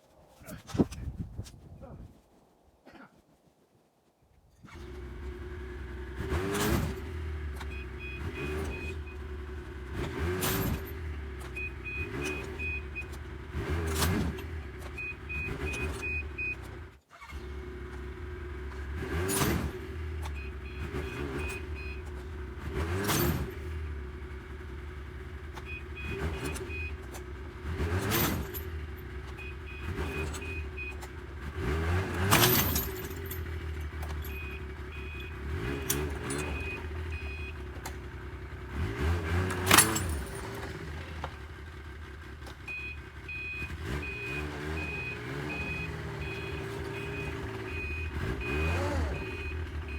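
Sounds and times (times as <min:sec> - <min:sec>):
snowmobile engine revving: 0:04.7 - 0:42.2, 0:42.8 - 0:49.9
reverse warning beeping: 0:06.4 - 0:17.3, 0:19.3 - 0:23.5, 0:25.5 - 0:27.2, 0:27.9 - 0:38.2, 0:42.1 - 0:49.9.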